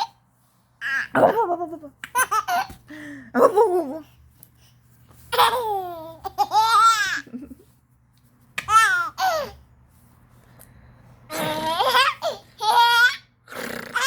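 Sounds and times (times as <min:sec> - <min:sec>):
baby laughing: 0:00.8 - 0:02.8, 0:05.3 - 0:07.7, 0:08.6 - 0:09.6, 0:11.3 - 0:13.3.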